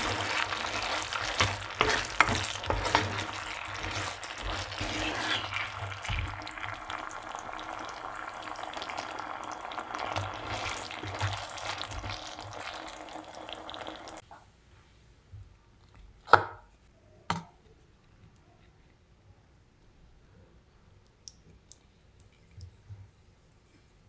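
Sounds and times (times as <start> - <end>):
food sizzling in a pan: 0.0 - 14.2.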